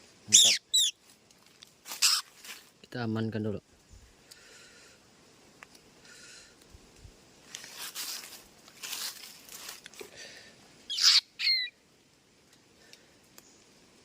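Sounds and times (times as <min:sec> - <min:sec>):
bird squawking: 0:00.3 - 0:01.0, 0:02.0 - 0:02.3, 0:10.9 - 0:11.8
rustling: 0:01.0 - 0:02.8, 0:06.8 - 0:10.3.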